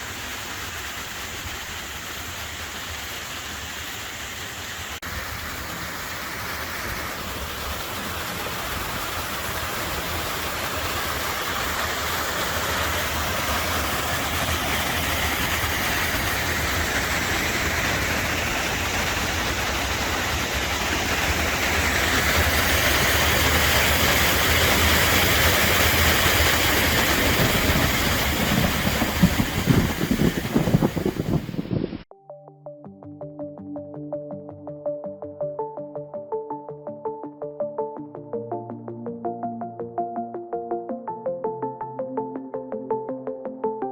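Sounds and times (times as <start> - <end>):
river water rushing: 0.0 - 31.5.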